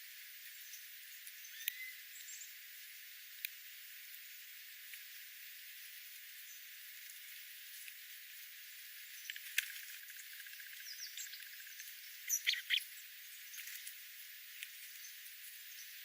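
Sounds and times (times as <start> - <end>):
steady hiss: 0.0 - 16.0
birds chirping: 10.8 - 12.9.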